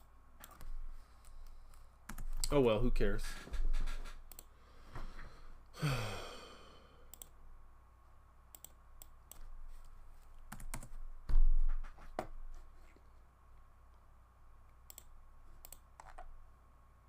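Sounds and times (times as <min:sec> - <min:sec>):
keyboard typing: 0:02.1 - 0:02.6, 0:10.5 - 0:12.3, 0:14.9 - 0:16.3.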